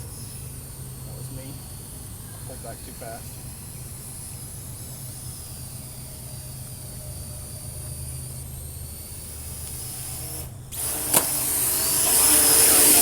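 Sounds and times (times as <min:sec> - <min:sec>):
drone propellers whirring: 0:00.0 - 0:13.0
sharp click: 0:10.8 - 0:11.4.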